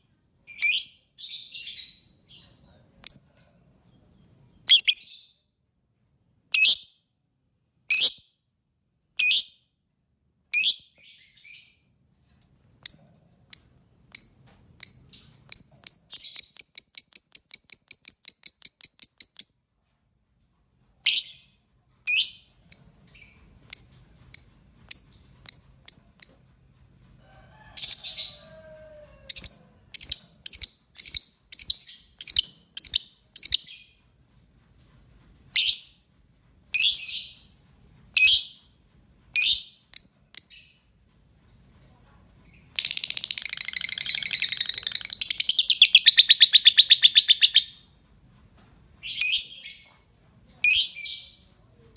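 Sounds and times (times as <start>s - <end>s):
lovebird chirps: 0.5s - 3.3s, 4.6s - 5.3s, 6.6s - 6.9s, 7.9s - 8.2s, 12.8s - 19.6s, 21.0s - 26.5s, 29.3s - 34.0s, 42.4s - 47.8s.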